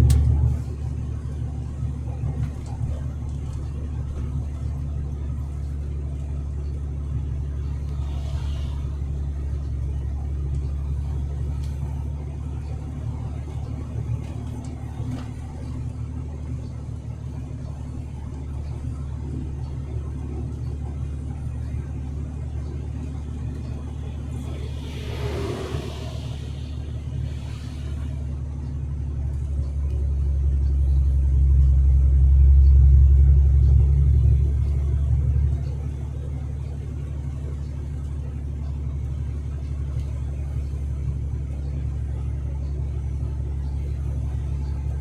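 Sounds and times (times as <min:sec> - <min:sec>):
road noise: 0:00.0 - 0:19.0, 0:21.5 - 0:45.0
truck engine rumble: 0:00.0 - 0:45.0
rushing swish: 0:24.2 - 0:28.4.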